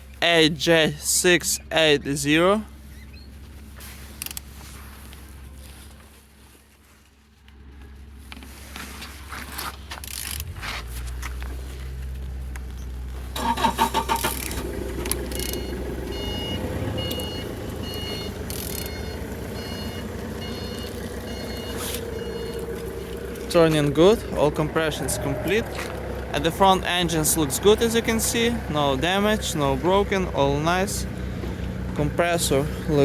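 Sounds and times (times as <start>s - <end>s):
diesel engine turning over: 9.9s - 33.0s
low steady hum: 10.1s - 33.0s
short high beeps: 15.3s - 22.6s.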